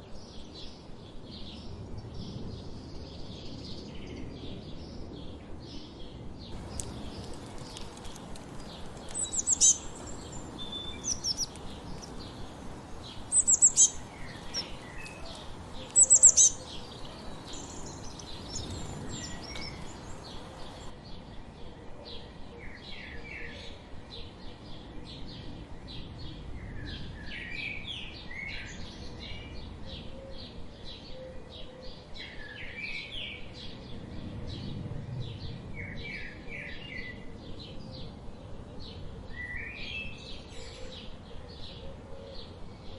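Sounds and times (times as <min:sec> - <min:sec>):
songbirds chirping and singing: 0:00.0 - 0:42.9
birds trilling: 0:06.6 - 0:20.9.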